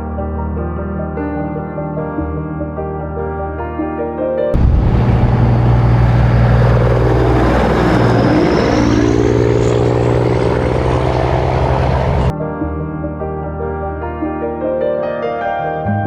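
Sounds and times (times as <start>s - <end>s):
diesel truck engine running: 4.6s - 12.3s
faint high whine: 4.6s - 12.3s.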